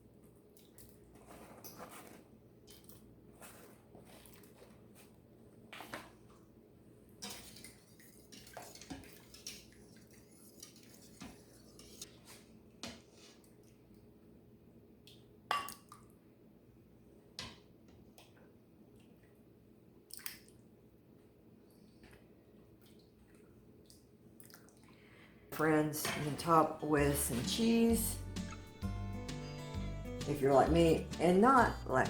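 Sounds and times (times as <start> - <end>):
metal utensil scraping a pot: 7.2 - 12.2.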